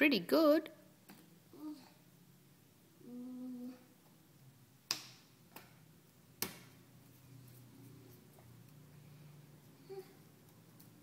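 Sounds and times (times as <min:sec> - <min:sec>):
person humming: 0:03.0 - 0:03.9.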